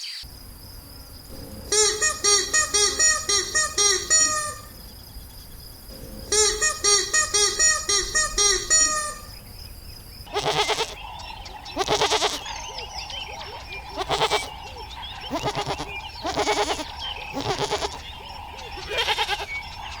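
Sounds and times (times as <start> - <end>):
faint chirping: 0.0 - 20.0
goats bleating: 10.3 - 11.1, 11.7 - 12.5, 13.8 - 19.9.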